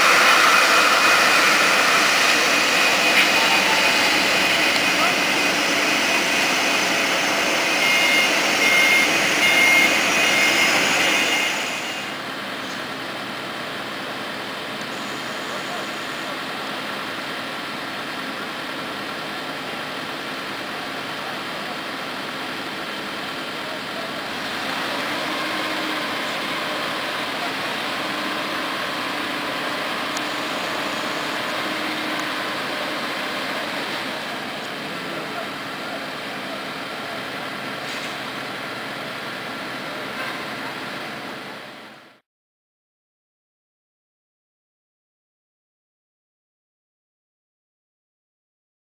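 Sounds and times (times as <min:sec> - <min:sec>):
jet engine hiss and hum: 0:00.0 - 0:12.2
jet engines roaring: 0:00.0 - 0:13.2, 0:24.2 - 0:35.7
turbine whine: 0:00.0 - 0:39.1.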